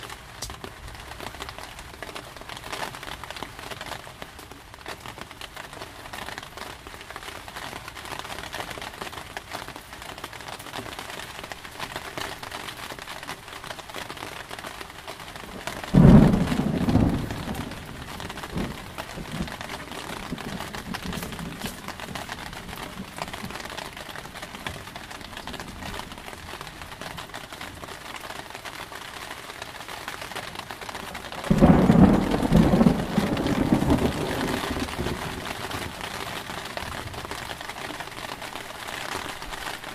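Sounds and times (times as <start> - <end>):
heavy rain: 0.0 - 39.9
thunderclaps rumbling: 15.5 - 26.6, 31.0 - 37.7.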